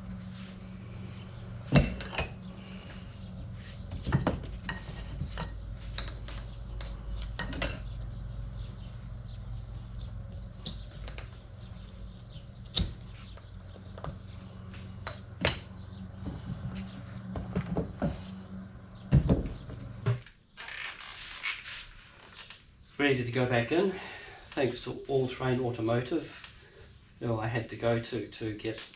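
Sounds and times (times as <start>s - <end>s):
low steady hum: 0.0s - 20.4s
metal parts clinking and knocking: 1.7s - 2.5s, 4.1s - 8.1s.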